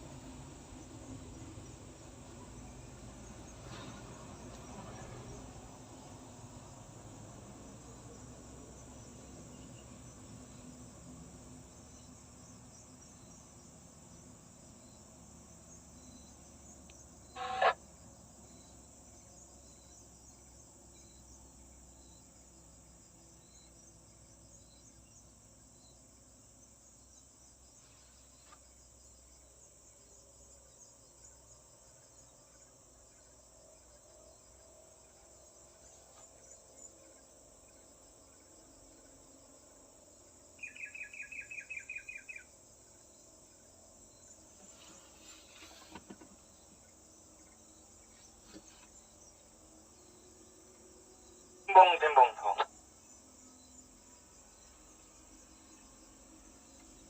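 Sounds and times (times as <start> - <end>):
insects chirring: 7.6 - 57.0
faint chirps: 16.0 - 17.8.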